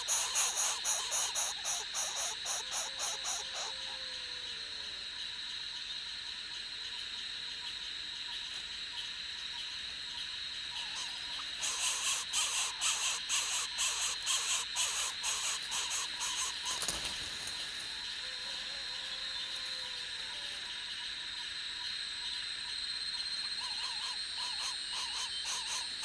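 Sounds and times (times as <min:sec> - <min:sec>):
baby birds squealing: 0:00.0 - 0:03.9, 0:10.8 - 0:17.5, 0:23.6 - 0:26.0.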